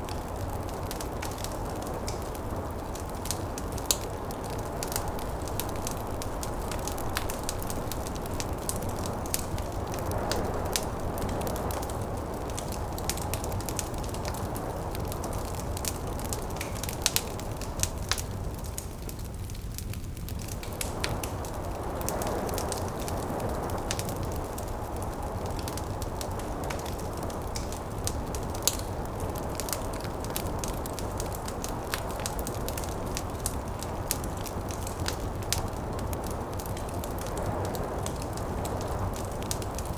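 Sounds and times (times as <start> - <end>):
snowstorm wind: 0.0 - 19.0
wood fire crackling: 0.0 - 39.9.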